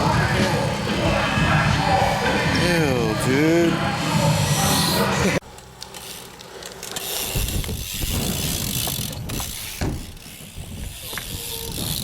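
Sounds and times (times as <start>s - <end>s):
bike rolling rattle: 4.4s - 12.0s.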